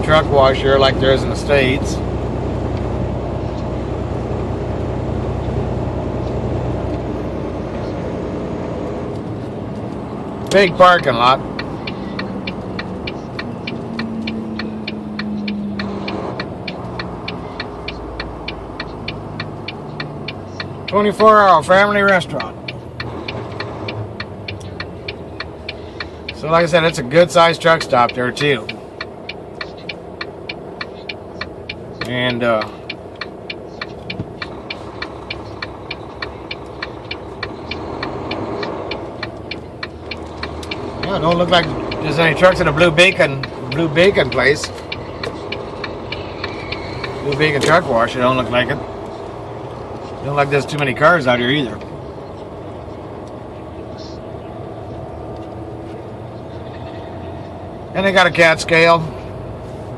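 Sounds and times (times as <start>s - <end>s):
truck engine running: 0.0s - 59.9s
turn signal clicking: 0.1s - 8.0s, 8.6s - 59.9s
rapid regular ticking: 9.2s - 53.5s.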